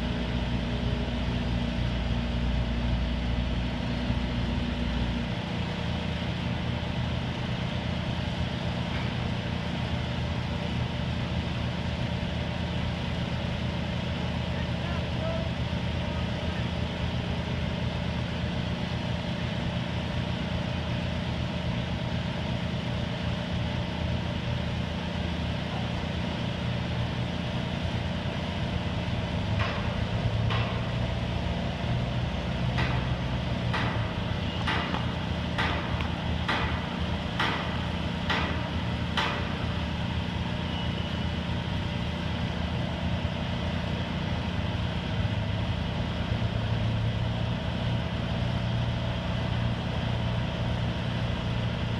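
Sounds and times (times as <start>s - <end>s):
crane diesel engine running: 0.0s - 51.9s
sharp knocks: 29.6s - 31.0s, 32.7s - 39.6s.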